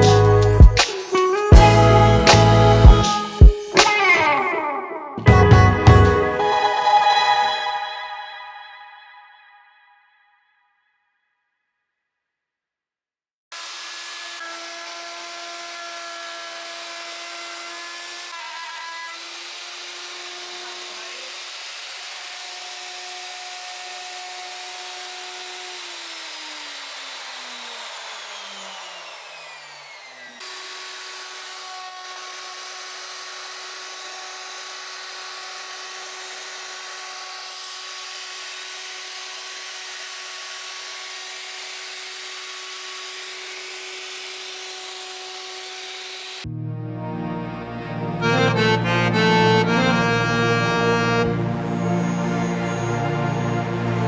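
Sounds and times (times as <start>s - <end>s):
wood router whining: 0.0s - 9.0s, 13.5s - 54.0s
music: 0.0s - 9.6s, 46.5s - 54.0s.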